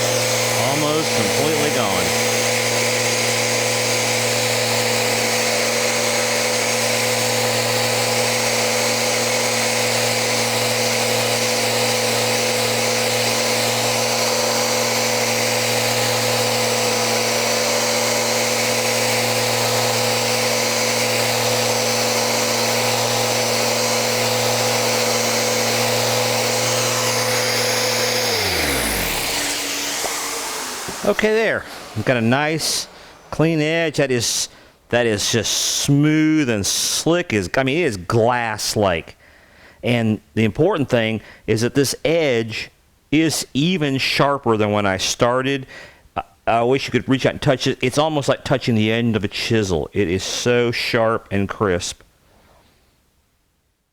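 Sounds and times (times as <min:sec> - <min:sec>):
sander motor spinning down: 0:00.0 - 0:34.5
sander running on wood: 0:00.0 - 0:36.8.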